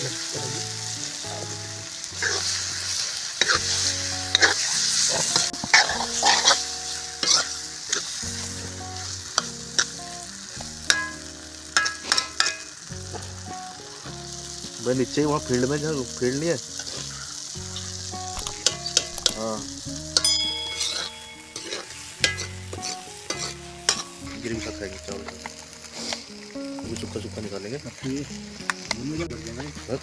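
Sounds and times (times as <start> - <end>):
food sizzling in a pot: 0.0 - 30.0
spoon scraping a pot: 3.4 - 7.6, 20.2 - 24.8.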